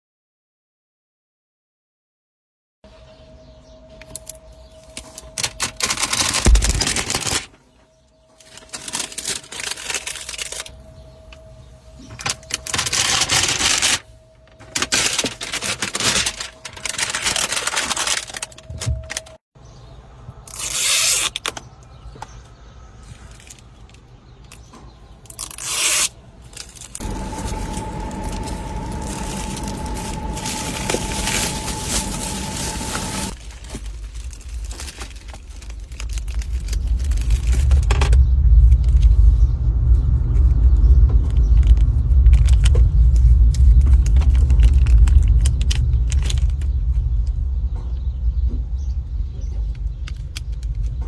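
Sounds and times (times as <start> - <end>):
plastic film peeling and ripping: 5.1 - 7.5, 8.4 - 10.7, 14.7 - 19.4, 20.5 - 21.6, 25.3 - 38.1, 41.6 - 46.7
steady hum: 27.0 - 33.4.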